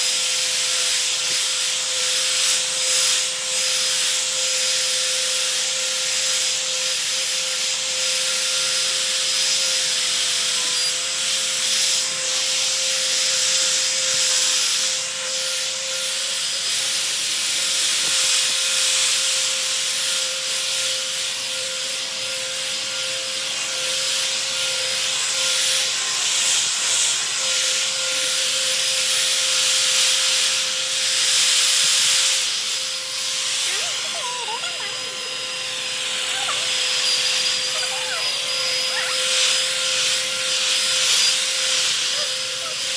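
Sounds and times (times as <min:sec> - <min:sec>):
vacuum cleaner running: 0:00.0 - 0:42.9.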